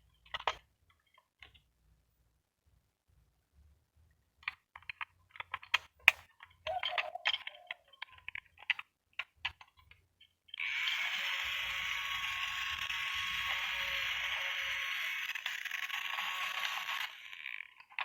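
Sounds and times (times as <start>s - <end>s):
plastic parts clicking and rattling: 0.1s - 1.6s, 4.4s - 10.6s, 12.7s - 18.0s
small motor whirring: 10.6s - 18.0s.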